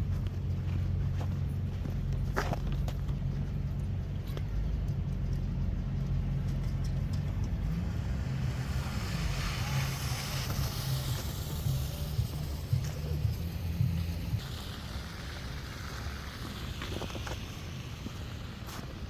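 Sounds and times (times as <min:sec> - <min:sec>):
car tyres hissing on snow: 0:00.0 - 0:03.8, 0:07.3 - 0:19.0
steady low rumble: 0:00.0 - 0:19.0.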